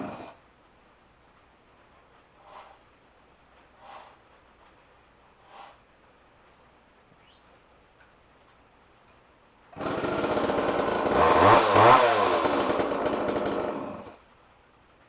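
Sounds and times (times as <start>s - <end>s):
chainsaw engine revving: 0.0s - 0.3s, 9.8s - 14.2s.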